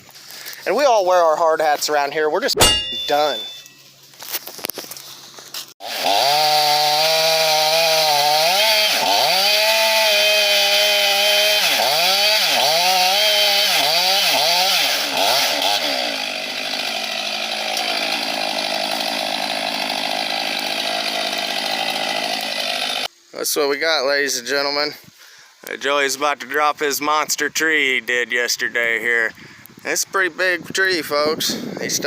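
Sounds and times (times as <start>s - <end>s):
chainsaw revving: 5.8s - 23.1s.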